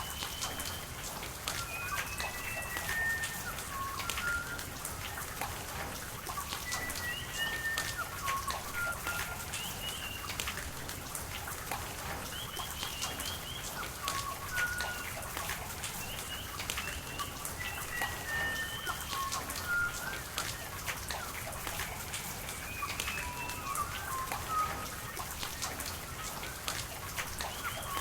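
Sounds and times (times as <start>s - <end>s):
birds whistling chirps: 0.0s - 0.9s, 1.5s - 4.6s, 6.4s - 10.4s, 12.3s - 25.8s, 27.3s - 28.0s
steady rain with drips: 0.0s - 28.0s.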